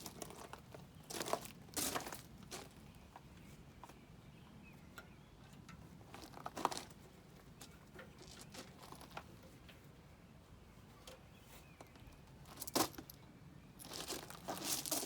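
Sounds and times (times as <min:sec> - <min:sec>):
crinkling rustles: 0:13.8 - 0:15.0.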